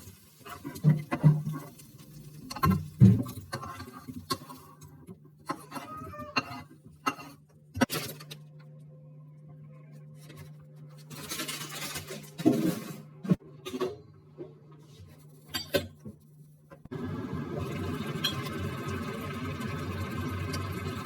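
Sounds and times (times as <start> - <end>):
knocks and clicks of kitchen items: 0.6 - 8.8.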